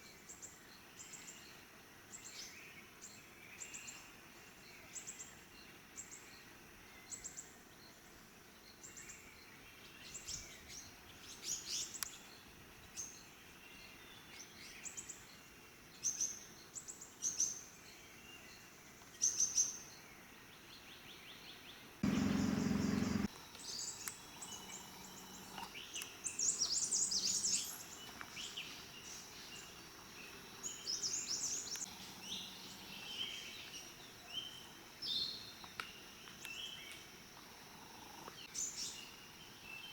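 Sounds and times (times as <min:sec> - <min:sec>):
small birds chirping: 0:16.0 - 0:39.9.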